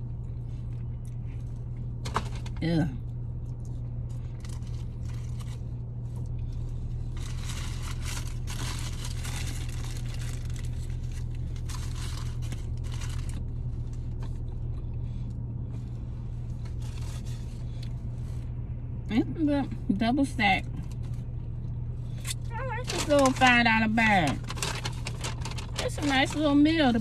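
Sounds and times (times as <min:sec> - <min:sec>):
car hum: 0:00.0 - 0:27.0
paper wrapper crinkling and tearing: 0:07.1 - 0:13.5, 0:22.8 - 0:23.5, 0:24.1 - 0:26.6.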